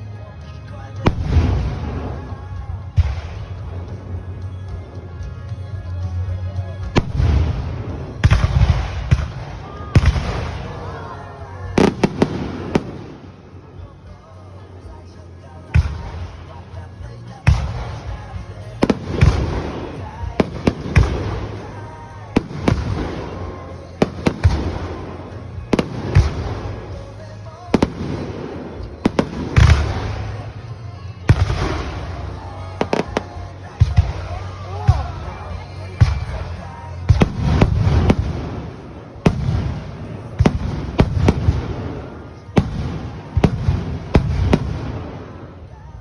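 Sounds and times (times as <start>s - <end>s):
fireworks bangs: 7.0s - 13.7s, 17.5s - 45.9s.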